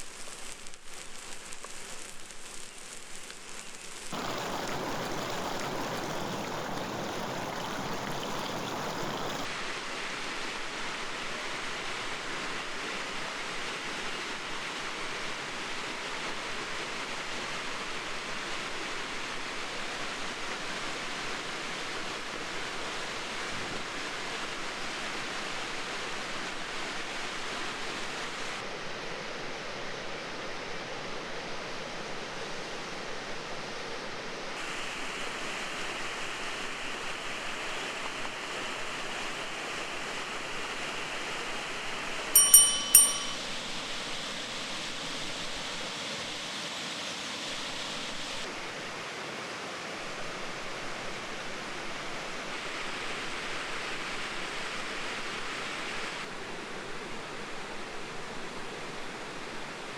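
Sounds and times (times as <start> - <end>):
rushing outdoor background noise: 4.1 - 59.9
metallic clinks: 42.4 - 43.5.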